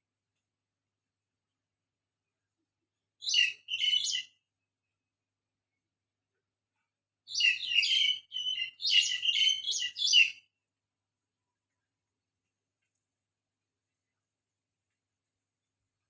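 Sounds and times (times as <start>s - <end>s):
songbird chirping: 2.2s - 13.2s.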